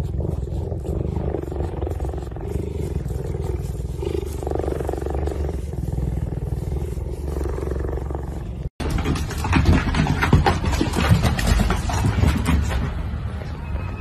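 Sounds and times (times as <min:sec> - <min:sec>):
cheetah purring: 0:00.0 - 0:08.8.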